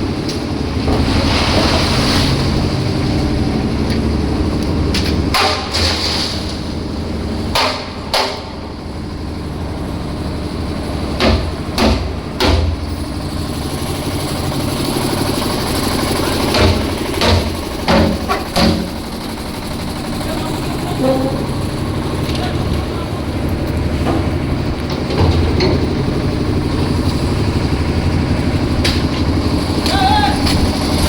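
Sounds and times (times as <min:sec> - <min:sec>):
engine running steadily: 0:00.0 - 0:31.0
sharp metal knocks and clanks: 0:04.9 - 0:06.4, 0:07.5 - 0:08.6, 0:11.1 - 0:12.9, 0:16.4 - 0:19.2, 0:23.9 - 0:26.3.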